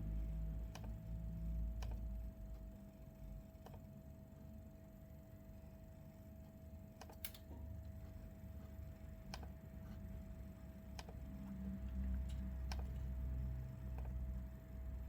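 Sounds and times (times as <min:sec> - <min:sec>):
steady low hum: 0:00.0 - 0:15.0
computer mouse clicking: 0:00.7 - 0:01.1, 0:01.7 - 0:02.7, 0:03.5 - 0:03.9, 0:07.0 - 0:08.0, 0:09.2 - 0:10.1, 0:10.8 - 0:13.2, 0:13.9 - 0:14.3.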